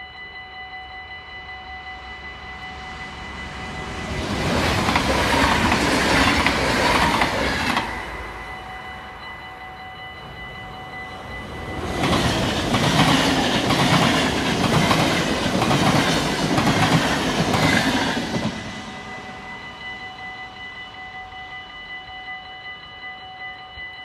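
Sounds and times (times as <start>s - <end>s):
crossing warning bell ringing: 0.0s - 24.0s
train rumble and wheel clatter: 1.5s - 22.4s.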